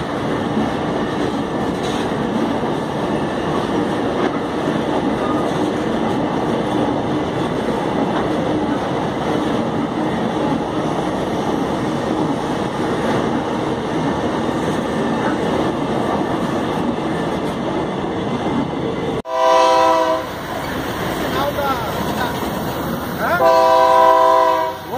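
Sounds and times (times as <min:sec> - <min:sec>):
locomotive horn: 0:19.3 - 0:20.3, 0:23.2 - 0:24.9.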